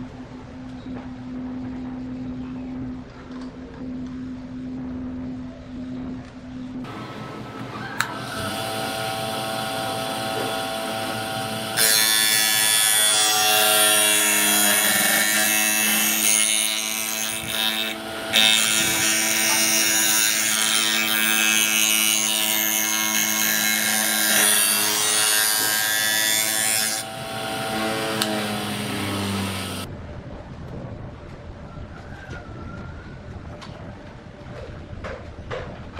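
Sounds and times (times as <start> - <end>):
rough wood cutting noise: 6.8 - 29.9
power tool motor hum: 8.0 - 29.9.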